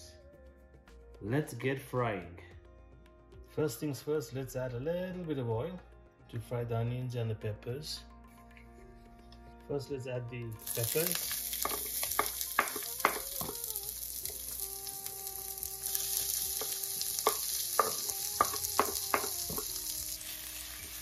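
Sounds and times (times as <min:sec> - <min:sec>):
chillies sizzling in hot oil: 0:10.6 - 0:21.0.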